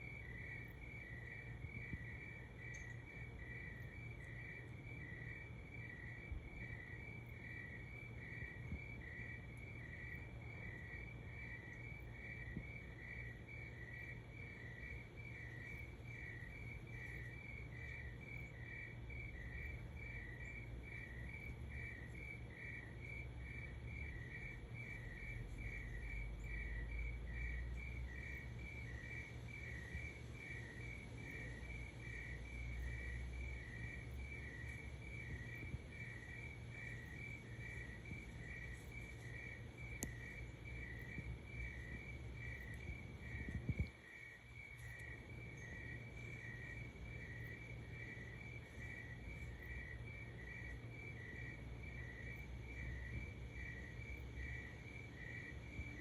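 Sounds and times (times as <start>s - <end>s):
crickets chirping: 0.0s - 56.0s
low steady rumble: 14.6s - 54.9s.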